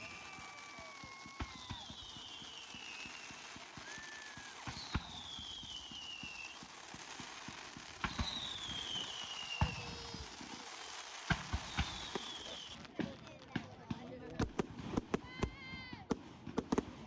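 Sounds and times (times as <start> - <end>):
high falling firework whistle: 0.0 - 12.9
fireworks bangs: 0.0 - 17.0
fireworks crackling and popping: 0.0 - 17.0.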